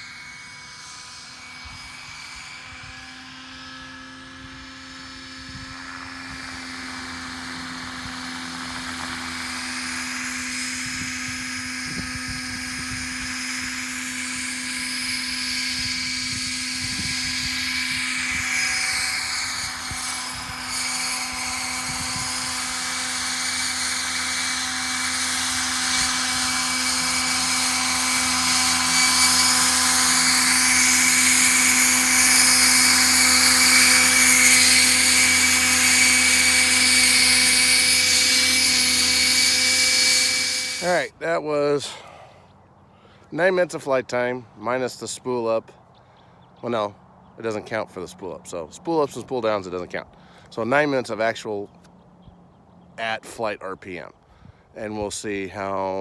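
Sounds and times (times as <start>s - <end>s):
rc helicopter rotor whine: 0.0s - 41.2s.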